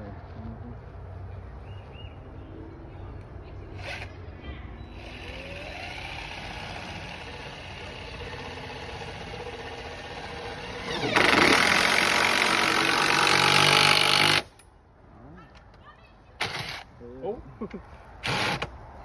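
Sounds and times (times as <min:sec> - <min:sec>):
cordless drill driving a screw: 0:03.8 - 0:04.2, 0:04.9 - 0:14.6, 0:16.4 - 0:16.9, 0:18.2 - 0:18.7.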